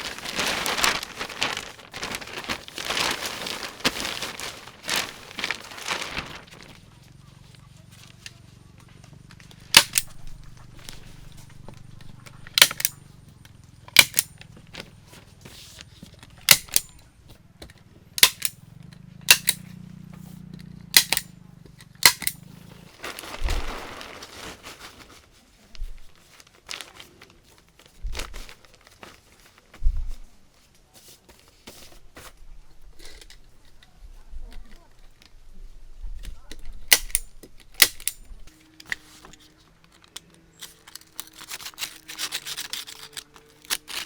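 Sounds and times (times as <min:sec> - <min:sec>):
rustle: 0:22.4 - 0:32.4.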